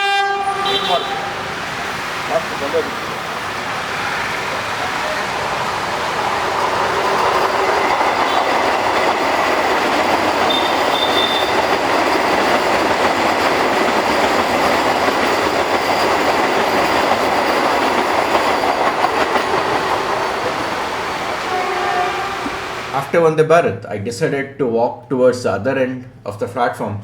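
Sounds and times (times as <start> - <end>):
high squeal: 0.0 - 2.9, 10.4 - 12.4, 15.2 - 23.0
train rushing past: 0.0 - 23.3
wheels clattering on rails: 0.5 - 23.1.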